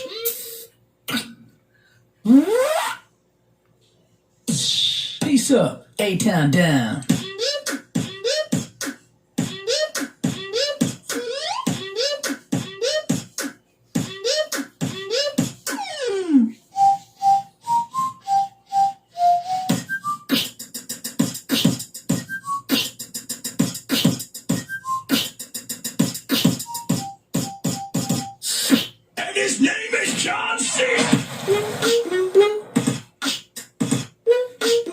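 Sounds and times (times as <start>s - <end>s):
beatboxing beat: 0.0s - 1.5s, 4.5s - 5.5s, 6.5s - 18.4s, 19.4s - 34.9s
whistled melody: 7.2s - 8.6s, 9.5s - 13.1s, 14.0s - 20.6s, 21.5s - 23.0s, 24.0s - 25.6s, 26.2s - 28.9s, 34.2s - 34.9s.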